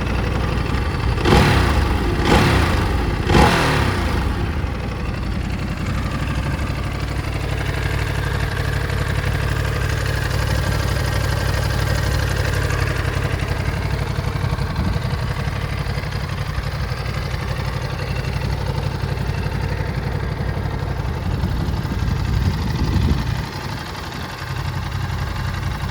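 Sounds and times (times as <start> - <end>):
motorcycle engine idling: 0.0 - 25.9.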